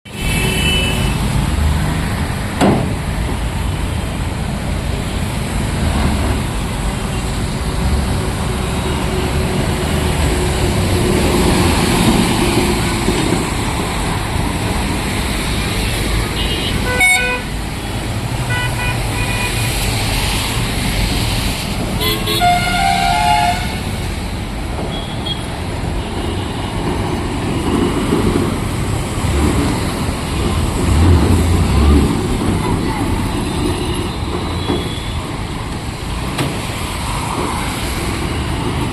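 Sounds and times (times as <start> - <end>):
road traffic: 0.0 - 38.9
car horns honking: 16.2 - 17.6, 18.4 - 19.8, 22.0 - 23.9.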